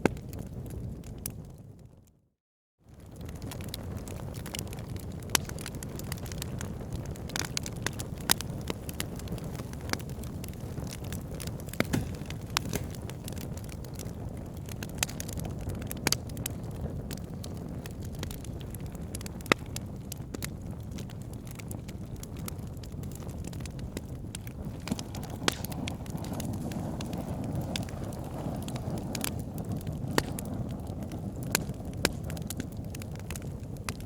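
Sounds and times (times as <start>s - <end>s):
burning wood crackling and popping: 0.0s - 1.9s, 2.9s - 34.0s
low rush of flame: 9.1s - 33.9s.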